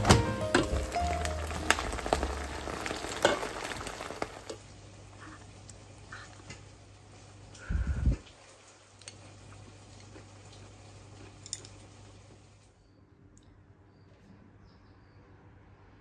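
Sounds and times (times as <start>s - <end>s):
peppers sizzling in frying pan: 0.0s - 7.7s, 8.3s - 12.6s.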